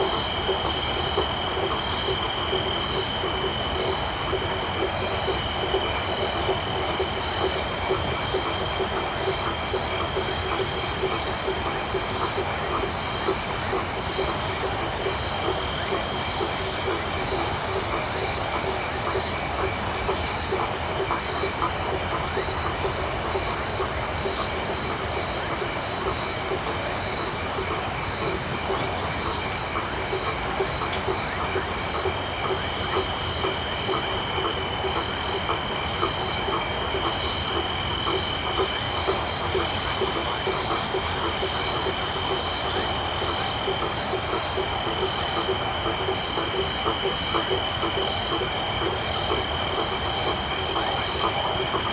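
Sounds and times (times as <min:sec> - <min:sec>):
frog calls: 0:00.0 - 0:51.9
insect trills: 0:24.3 - 0:34.0
sharp click: 0:27.5 - 0:27.8.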